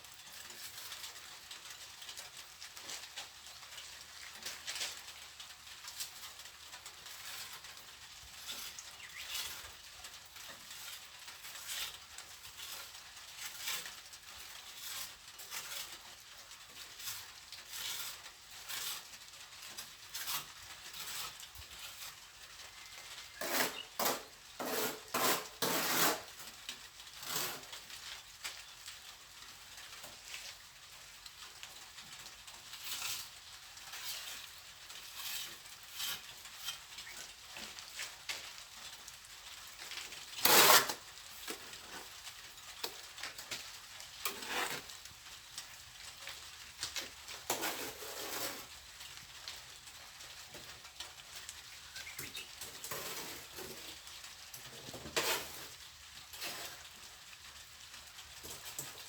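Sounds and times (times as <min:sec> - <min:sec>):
trowel scraping mortar: 0:08.4 - 0:09.7, 0:10.4 - 0:16.2, 0:16.8 - 0:26.4, 0:27.2 - 0:27.8, 0:32.8 - 0:38.1, 0:40.3 - 0:42.1, 0:44.2 - 0:45.0, 0:47.4 - 0:48.8, 0:52.2 - 0:54.1, 0:54.7 - 0:56.8.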